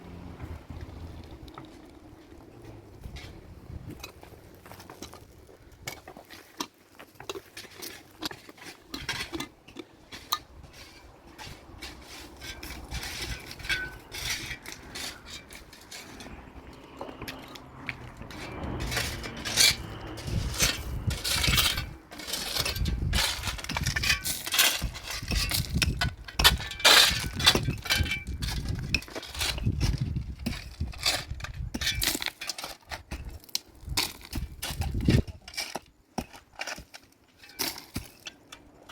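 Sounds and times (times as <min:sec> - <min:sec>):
low rumbling noise: 0:00.0 - 0:05.8, 0:12.6 - 0:22.1.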